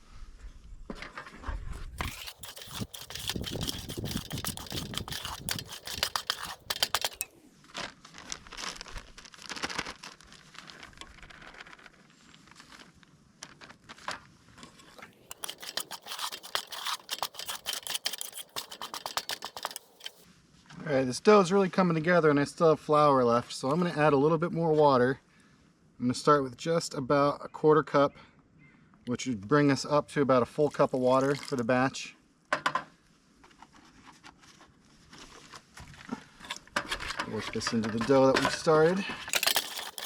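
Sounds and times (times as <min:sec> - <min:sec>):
utensil scraping a pot: 0:02.0 - 0:07.3, 0:15.2 - 0:20.2, 0:39.3 - 0:40.0.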